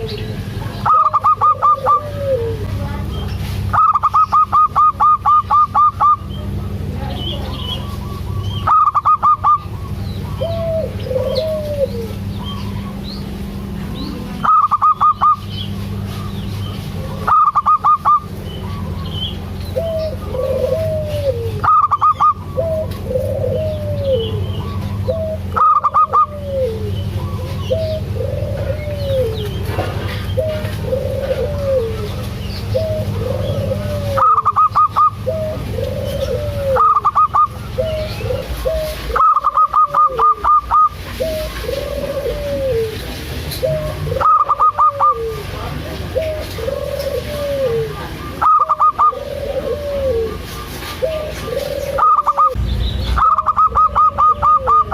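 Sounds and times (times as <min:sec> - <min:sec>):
dove cooing: 0:00.0 - 0:54.9
steady low hum: 0:00.0 - 0:54.9
rapid pulsed high bird notes: 0:14.4 - 0:20.8, 0:51.9 - 0:54.9.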